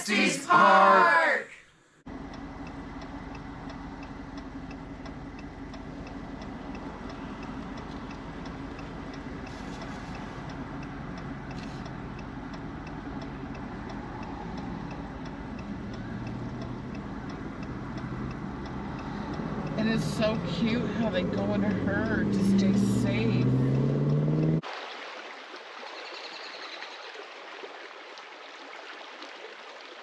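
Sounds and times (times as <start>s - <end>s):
car cabin hum: 2.1s - 24.6s
turn signal ticking: 2.1s - 24.6s.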